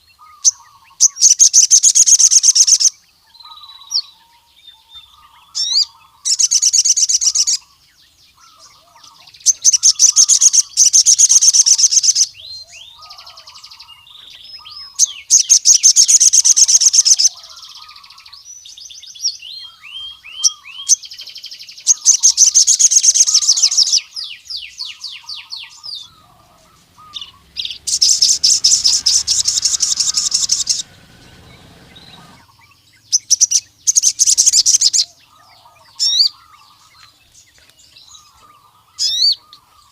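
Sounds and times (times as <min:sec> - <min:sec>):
soft bird twittering: 0:00.0 - 0:39.9
bird trilling rapidly: 0:08.4 - 0:18.0, 0:25.1 - 0:35.0.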